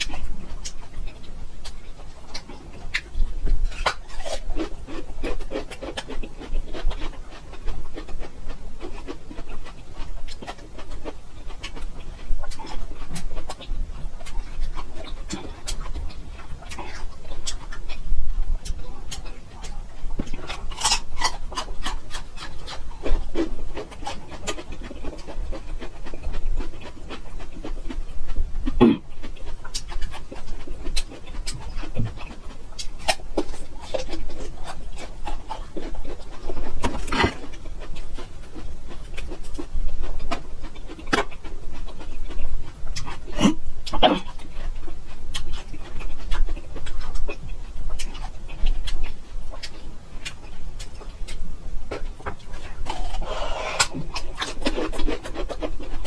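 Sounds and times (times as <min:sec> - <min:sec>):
ginger root being chewed: 0:00.0 - 0:56.0.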